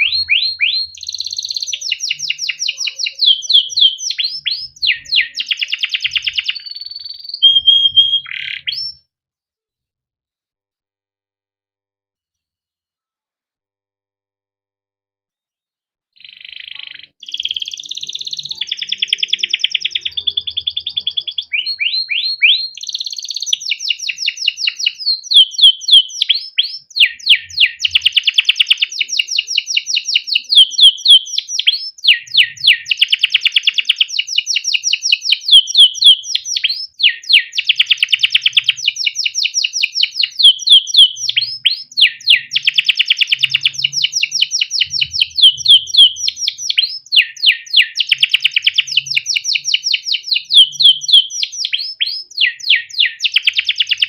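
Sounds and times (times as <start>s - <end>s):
canary singing with trills: 0.0s - 9.1s, 16.2s - 54.0s.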